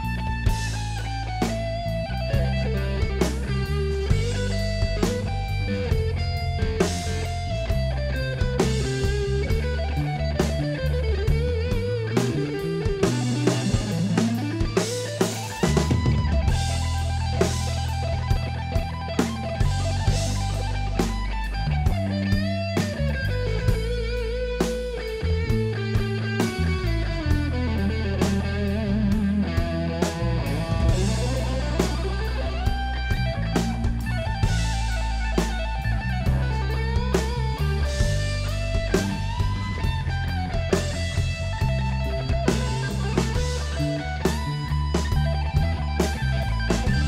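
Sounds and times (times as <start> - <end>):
bass guitar: 0.0 - 47.0
drum kit steady beat: 0.0 - 47.0
sliding electric guitar melody: 0.0 - 47.0.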